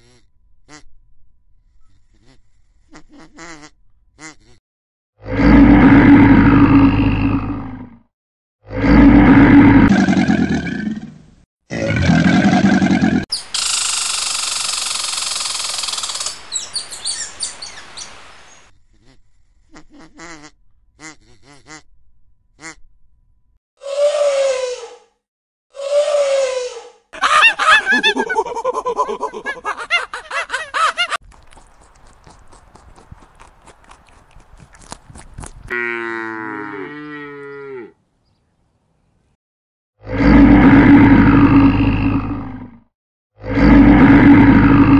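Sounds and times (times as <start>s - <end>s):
squirrel high-pitched call: 13.3s - 14.8s
bear growling: 43.4s - 44.9s.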